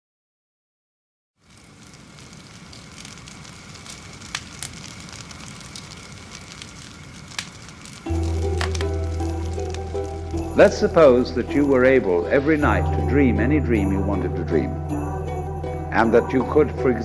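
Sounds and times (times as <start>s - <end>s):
crackles and pops: 1.4s - 12.6s
steady hiss: 1.4s - 12.8s
loud music: 8.1s - 17.0s.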